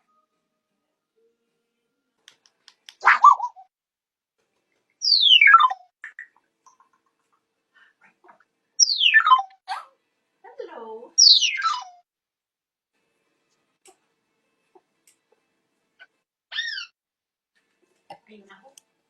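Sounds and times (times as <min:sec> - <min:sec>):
faint clicks: 0:02.2 - 0:03.0
parrot squawking: 0:03.0 - 0:03.6, 0:05.0 - 0:06.4, 0:08.0 - 0:09.9, 0:11.2 - 0:12.0, 0:16.0 - 0:17.0.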